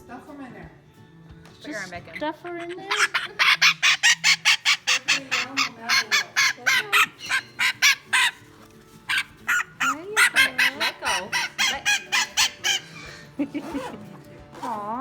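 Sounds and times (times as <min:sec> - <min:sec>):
parrot squawking harshly: 0:02.0 - 0:13.9.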